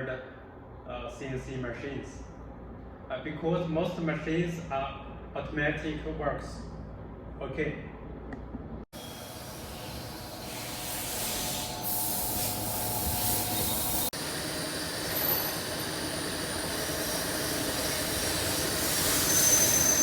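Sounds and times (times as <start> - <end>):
machine hum and hiss: 8.3 - 20.0.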